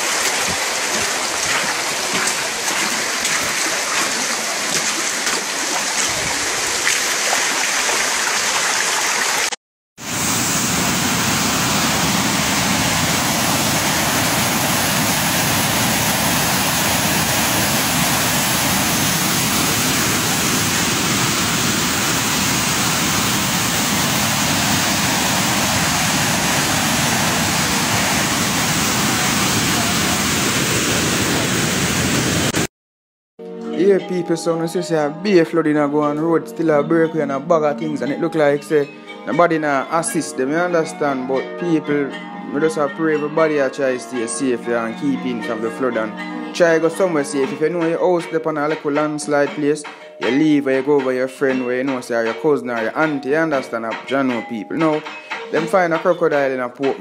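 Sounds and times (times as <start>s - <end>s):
floodwater rushing: 0.0s - 32.7s.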